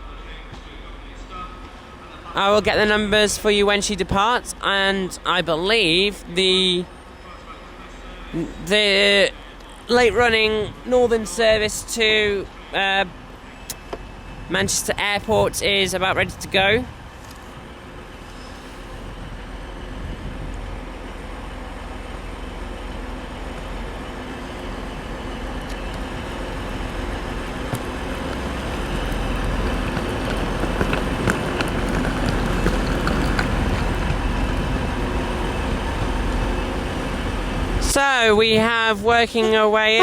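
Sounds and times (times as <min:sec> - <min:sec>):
train motor hum and wheel noise: 0:00.0 - 0:40.0
wheels clicking over rails: 0:21.8 - 0:38.6.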